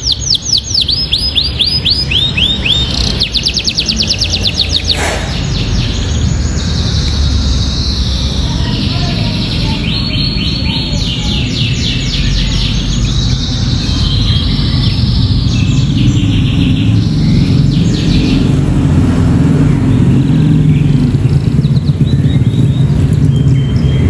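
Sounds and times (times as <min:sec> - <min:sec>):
canary singing trills: 0:00.0 - 0:24.0.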